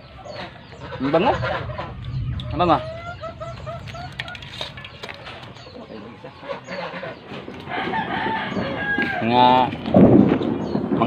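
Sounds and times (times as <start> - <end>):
bird calls: 0.0 - 11.0.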